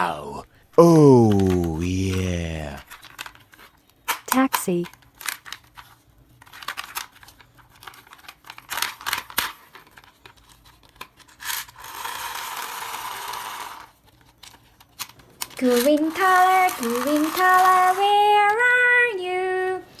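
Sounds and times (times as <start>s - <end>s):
toy car clicks and scrapes: 1.3s - 18.6s.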